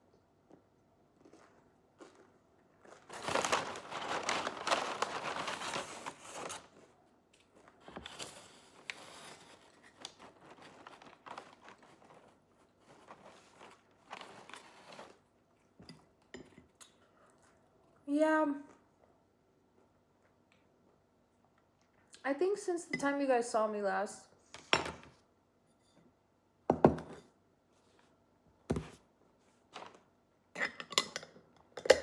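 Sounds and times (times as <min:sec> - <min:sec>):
eating crunches: 0:00.5 - 0:03.3
plastic packaging crinkling: 0:02.9 - 0:06.8, 0:07.4 - 0:15.2, 0:29.8 - 0:30.0.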